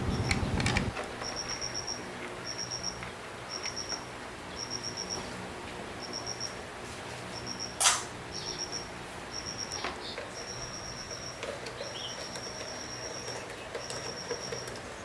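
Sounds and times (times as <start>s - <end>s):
motorbike engine running: 0.0s - 0.9s.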